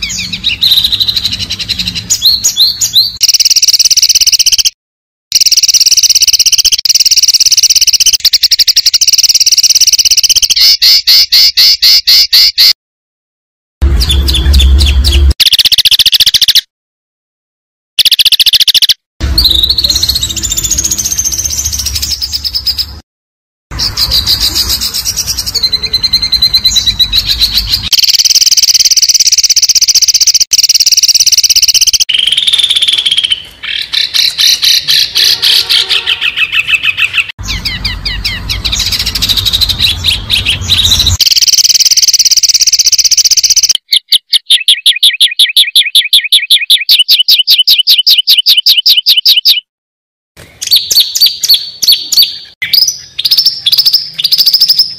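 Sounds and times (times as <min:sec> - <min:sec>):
songbird chirps whistles and trills: 0:00.0 - 0:04.8, 0:05.4 - 0:12.8, 0:36.3 - 0:49.7, 0:50.6 - 0:54.9.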